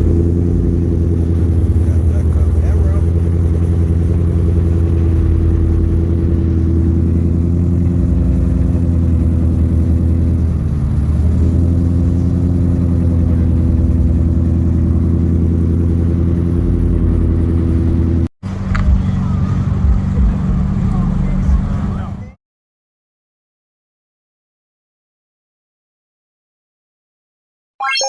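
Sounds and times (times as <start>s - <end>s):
car engine running: 0.0s - 22.4s.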